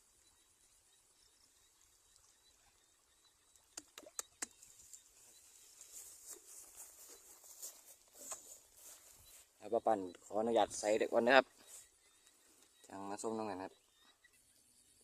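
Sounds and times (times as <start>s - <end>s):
small ticks: 0.0s - 10.4s, 11.4s - 15.0s
sharp clicks: 3.6s - 4.7s.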